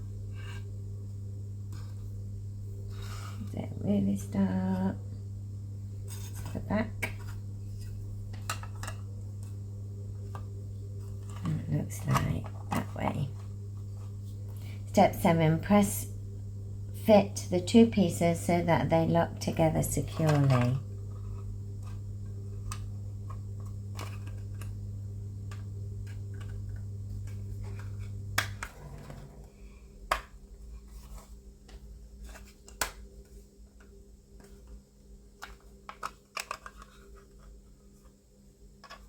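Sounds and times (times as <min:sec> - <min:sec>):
steady low hum: 0:00.0 - 0:39.0
plastic pieces clicking and tapping: 0:35.4 - 0:37.6, 0:38.8 - 0:39.0.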